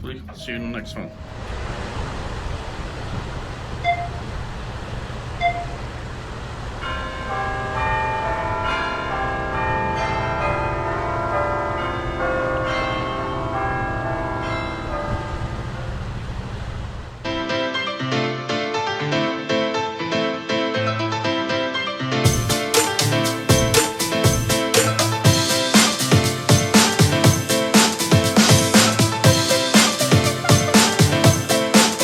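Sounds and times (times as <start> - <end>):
background rumble: 0.0 - 7.4
bells ringing: 6.8 - 15.6.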